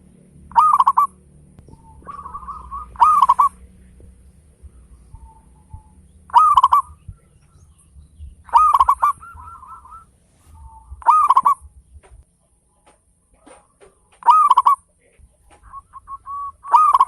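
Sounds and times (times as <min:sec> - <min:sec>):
low hum: 0:00.0 - 0:14.5, 0:15.1 - 0:17.0
dove cooing: 0:00.5 - 0:12.2, 0:12.8 - 0:17.0.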